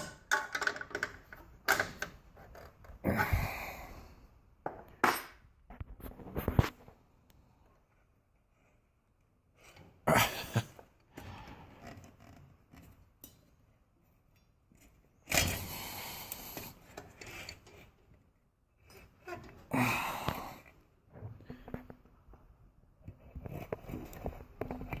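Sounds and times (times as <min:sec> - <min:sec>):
scrapes and knocks handling parts: 0:00.0 - 0:03.0, 0:16.6 - 0:19.7, 0:21.1 - 0:25.0.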